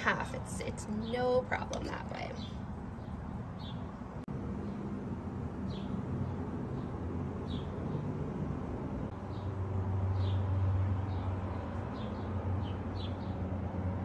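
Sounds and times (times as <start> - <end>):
bird chirping: 1.0 - 4.8.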